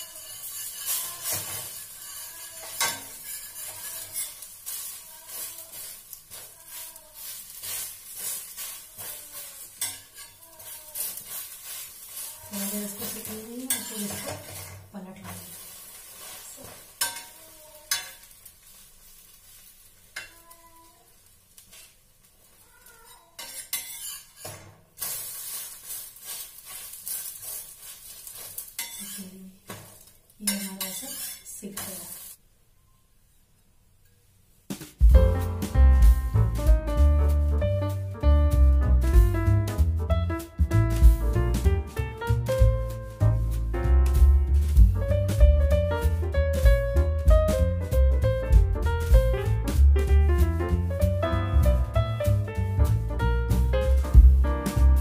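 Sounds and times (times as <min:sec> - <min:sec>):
spatula scraping a pan: 0:00.0 - 0:20.5, 0:21.2 - 0:32.4
bread sizzling on a griddle: 0:00.0 - 0:32.4, 0:42.3 - 0:50.0.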